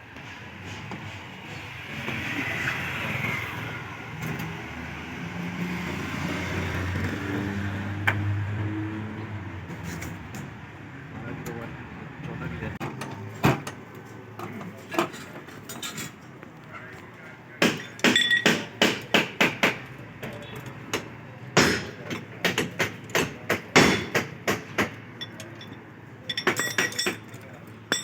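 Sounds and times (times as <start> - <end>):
hammer striking metal: 17.6 - 19.8, 21.6 - 25.4.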